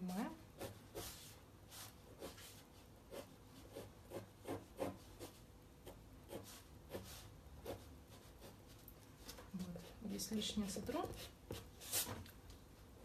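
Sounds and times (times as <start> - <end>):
pencil scratching on paper: 0.5 - 8.8, 11.0 - 12.2.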